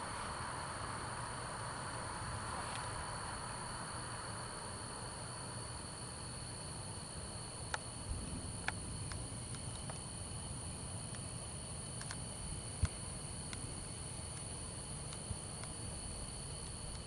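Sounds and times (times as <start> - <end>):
crickets chirring: 0.0 - 17.0
faint clicks: 12.0 - 12.2.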